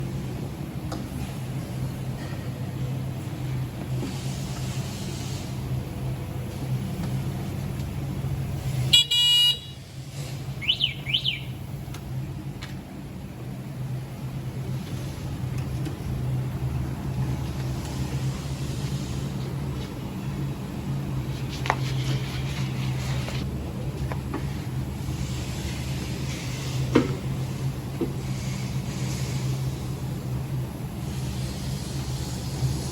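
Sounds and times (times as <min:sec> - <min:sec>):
vehicle running with road noise: 0:00.0 - 0:32.9
scooter horn beep: 0:08.9 - 0:09.8, 0:10.6 - 0:11.5.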